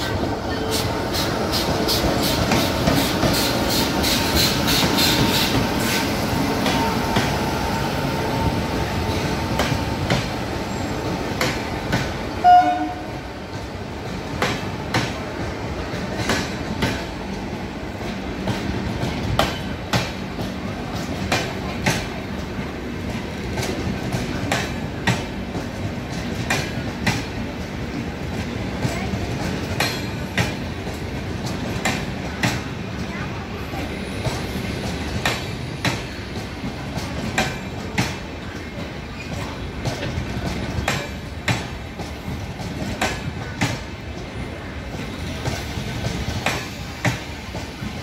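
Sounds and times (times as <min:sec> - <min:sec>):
train rolling past: 0:00.0 - 0:48.0
train horn toot: 0:12.4 - 0:13.2.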